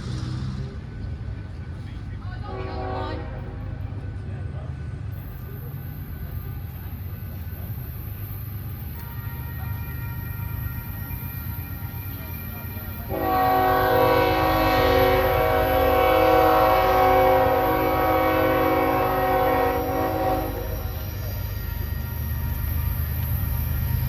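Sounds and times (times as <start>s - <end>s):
low train rumble: 0.0s - 24.0s
locomotive air horn blast: 2.5s - 3.6s, 8.6s - 12.2s, 13.0s - 23.0s.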